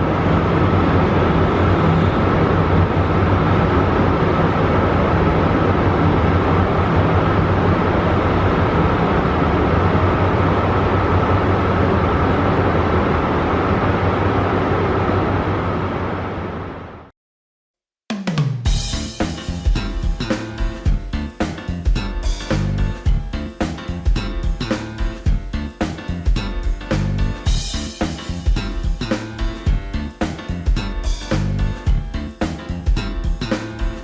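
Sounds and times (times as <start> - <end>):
train diesel engine running: 0.0 - 16.8.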